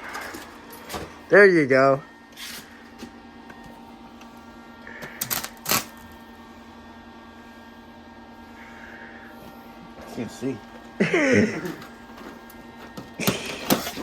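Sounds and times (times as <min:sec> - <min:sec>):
electric welder humming: 0:00.0 - 0:14.0
welding arc crackling: 0:04.9 - 0:06.1.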